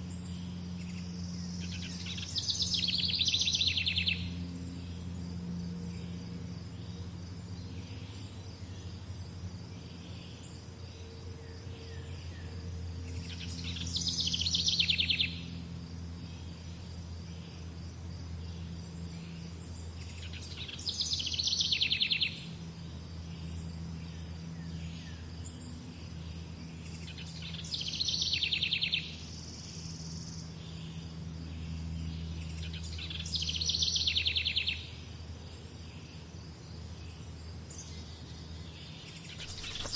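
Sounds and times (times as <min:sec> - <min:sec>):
faint insect-like drone: 0:00.0 - 0:39.9
steady low hum: 0:00.0 - 0:39.9
songbird trilling: 0:39.3 - 0:39.9.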